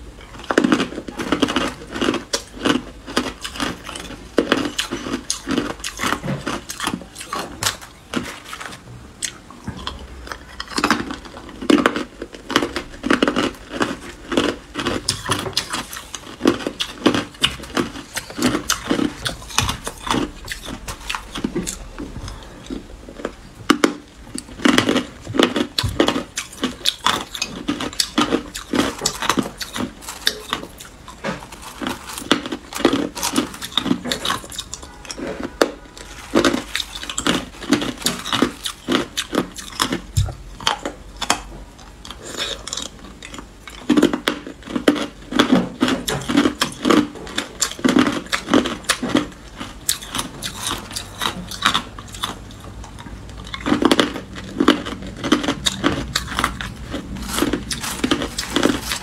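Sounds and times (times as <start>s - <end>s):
person crunching ice: 0.4s - 8.7s, 10.6s - 34.7s, 53.6s - 59.0s.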